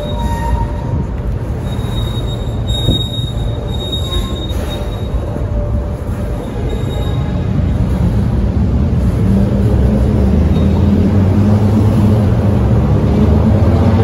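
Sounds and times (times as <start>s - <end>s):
high wheel squeal: 0.0s - 7.6s, 10.4s - 11.2s
freight train rumbling past: 0.0s - 14.0s.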